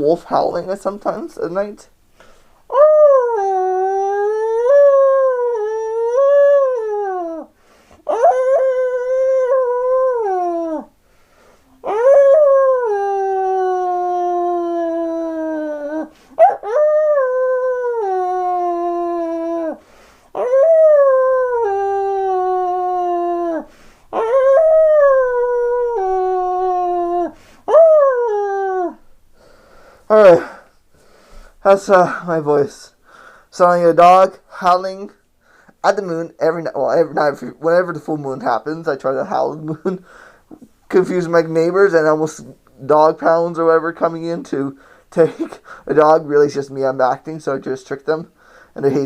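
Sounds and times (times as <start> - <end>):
man imitating dog howls: 2.7 - 7.5, 8.1 - 10.9, 11.8 - 19.8, 20.4 - 29.0, 30.1 - 30.6.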